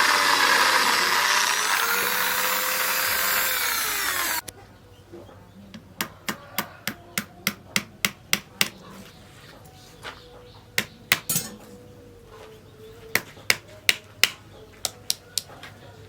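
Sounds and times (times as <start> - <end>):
hammer blows with metallic ring: 10.8 - 11.7.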